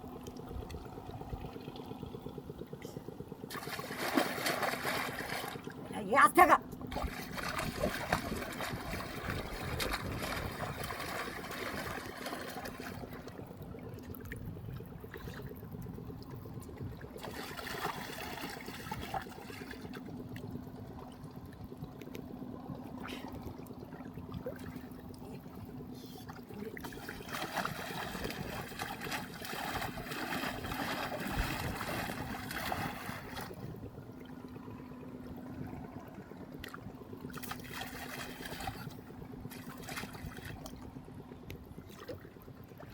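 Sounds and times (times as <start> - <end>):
low hum: 0.0 - 42.9
water trickling and splashing: 3.4 - 42.9.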